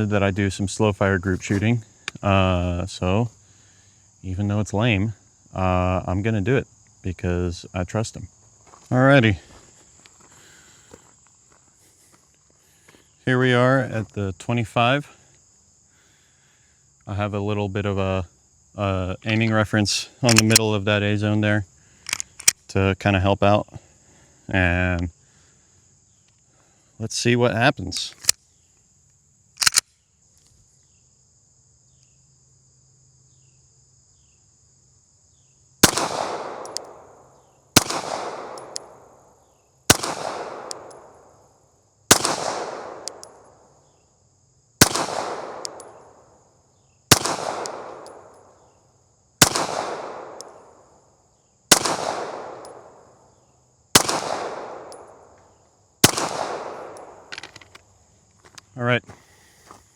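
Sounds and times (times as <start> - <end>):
handgun shots with echo: 35.8 - 37.1, 37.8 - 39.0, 39.9 - 41.2, 42.1 - 43.4, 44.8 - 46.0, 47.1 - 48.3, 49.4 - 50.6, 51.7 - 53.0, 54.0 - 55.3, 56.0 - 57.6.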